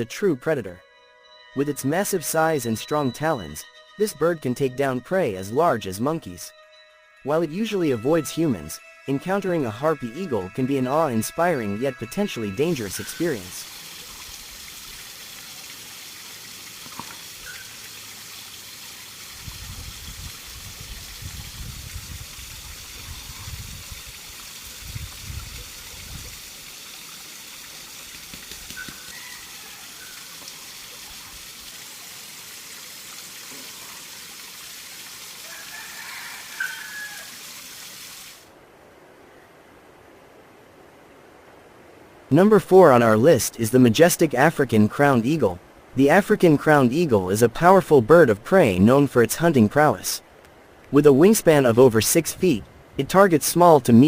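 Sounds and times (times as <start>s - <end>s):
running water rushing: 7.2s - 38.6s.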